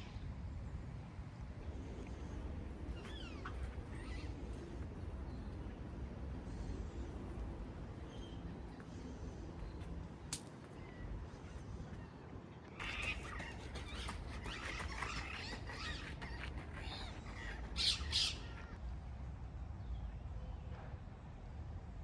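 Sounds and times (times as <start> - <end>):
birds chattering: 12.7 - 18.8.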